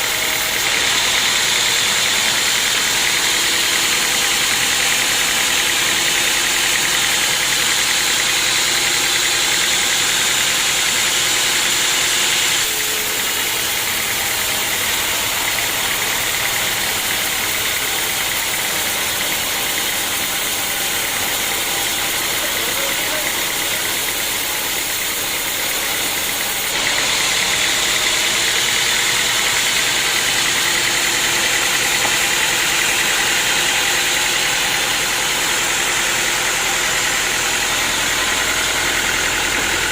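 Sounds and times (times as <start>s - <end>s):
sawmill saw whining: 0.0s - 39.9s.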